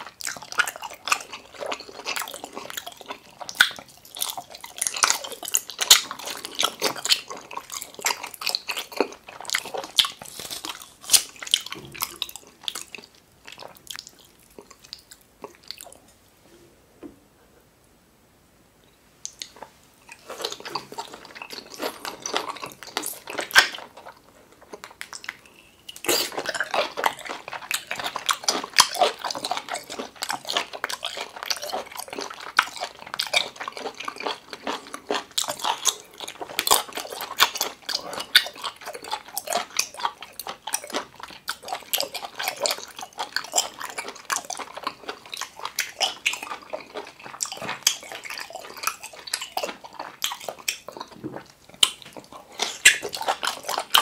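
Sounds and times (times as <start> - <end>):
wet chewing: 0.0 - 16.0, 19.2 - 54.0.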